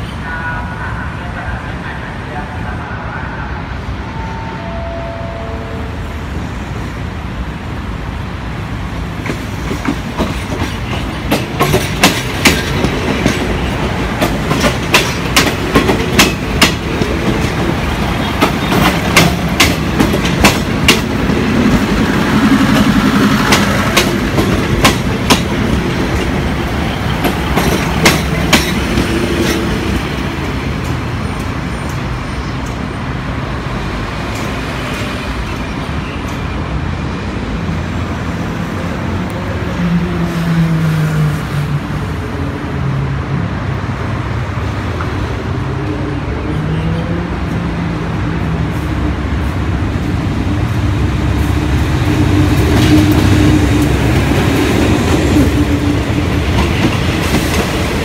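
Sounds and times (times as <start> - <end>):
diesel train rumble passing: 0.0 - 58.0
wheels clacking over rail joints: 9.2 - 30.2.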